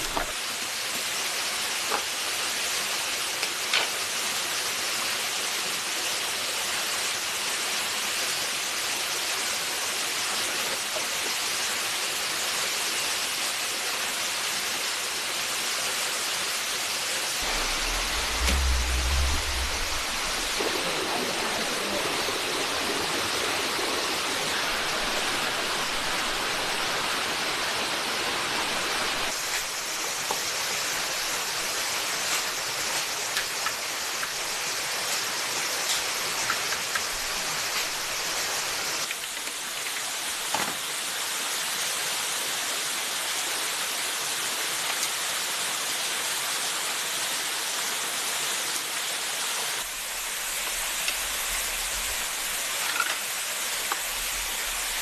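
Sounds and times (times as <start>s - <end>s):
water hissing: 17.3s - 36.4s, 49.8s - 55.0s
sharp knock: 17.4s - 20.6s.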